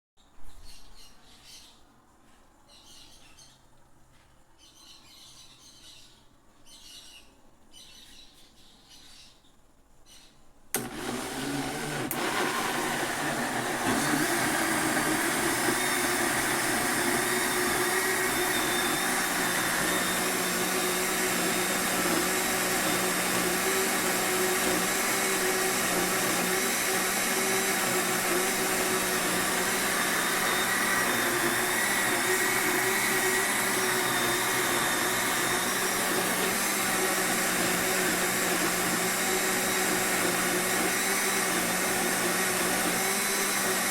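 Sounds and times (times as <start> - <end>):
blender motor running: 10.8 - 43.9.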